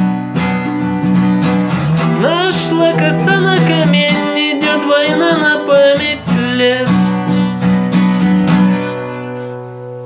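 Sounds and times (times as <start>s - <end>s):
acoustic guitar strumming: 0.0s - 10.0s
man singing: 2.0s - 7.8s.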